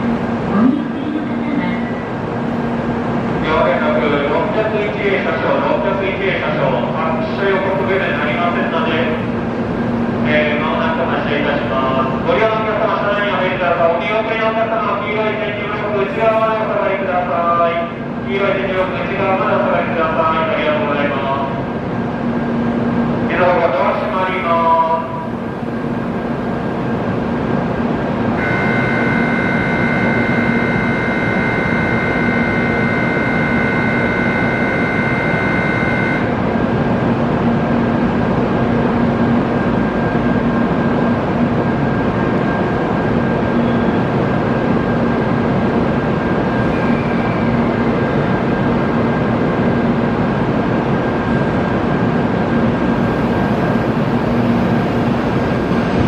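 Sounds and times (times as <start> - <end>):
station ambience: 0.0 - 56.0
train hum: 0.0 - 56.0
electronic multi-pitch tone: 28.4 - 36.4.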